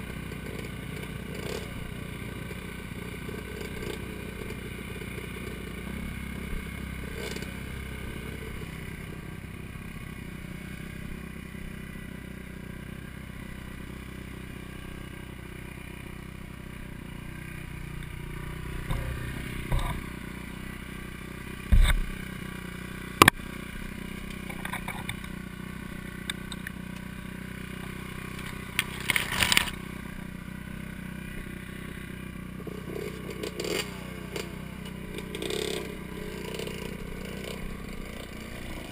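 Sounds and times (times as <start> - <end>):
dirt bike engine running: 0.0 - 38.9
knocks and clatter from bike: 18.7 - 20.2, 21.5 - 22.4, 23.1 - 23.6, 24.2 - 25.4, 28.2 - 29.8.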